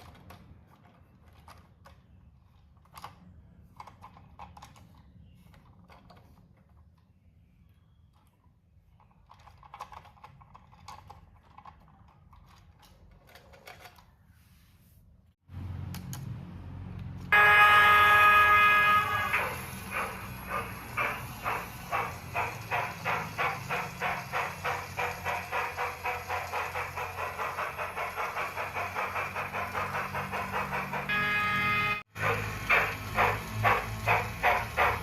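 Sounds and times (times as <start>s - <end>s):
steam whistle blast: 17.3s - 20.9s, 30.9s - 33.6s
steam engine chuffing: 17.3s - 35.0s.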